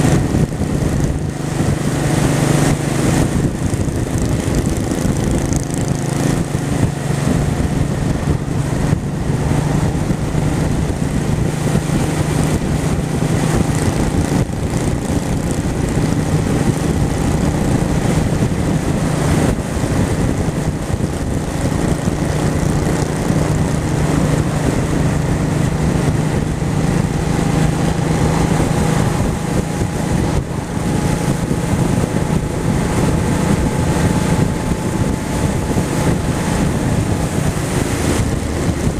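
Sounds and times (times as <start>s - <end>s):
motorcycle engine running: 0.0s - 38.9s
wind rushing over microphone: 0.0s - 38.9s.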